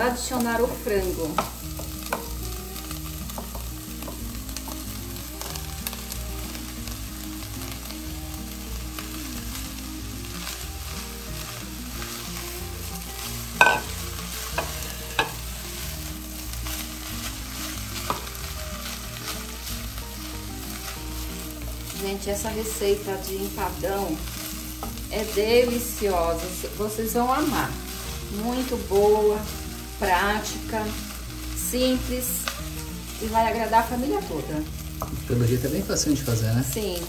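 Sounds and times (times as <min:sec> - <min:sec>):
chicken sizzling in a pot: 0:00.0 - 0:37.0
spatula stirring and scraping: 0:10.1 - 0:36.1
utensils knocking on pot: 0:13.6 - 0:14.0, 0:14.6 - 0:15.4.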